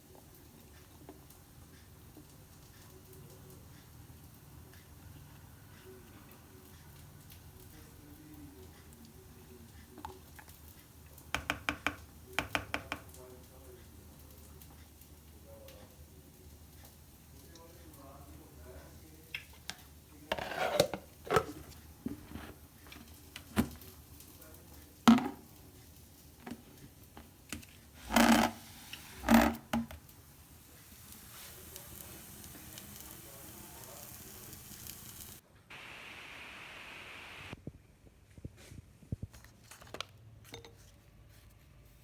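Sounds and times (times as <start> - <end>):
steady faint hiss: 12.0 - 40.0.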